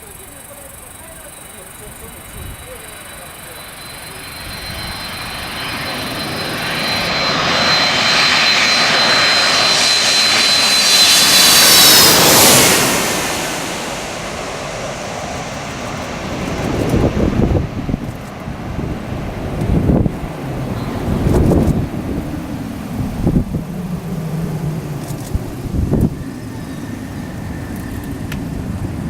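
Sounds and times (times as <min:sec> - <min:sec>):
airliner passing overhead: 0:00.0 - 0:29.0
wind gusts on microphone: 0:15.2 - 0:29.0.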